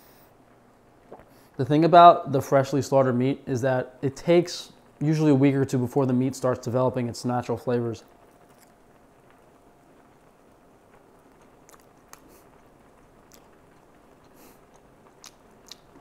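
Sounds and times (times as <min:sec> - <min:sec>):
faint chewing: 0:08.3 - 0:08.8, 0:10.9 - 0:16.0
soft mouth clicks: 0:11.7 - 0:12.5, 0:13.3 - 0:13.6, 0:14.2 - 0:16.0.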